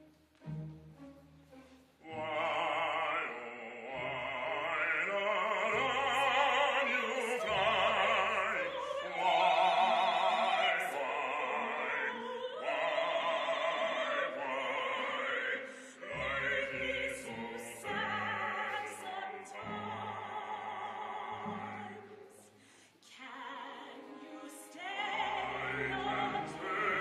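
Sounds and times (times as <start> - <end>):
instrumental accompaniment: 0.0 - 2.1
operatic voice singing: 2.0 - 27.0.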